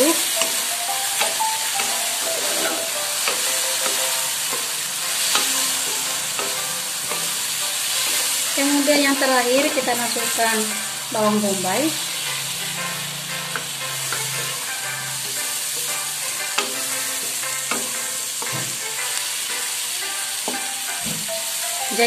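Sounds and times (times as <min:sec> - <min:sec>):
food sizzling in a wok: 0:00.0 - 0:22.0
wooden spatula scraping pan: 0:01.8 - 0:10.6.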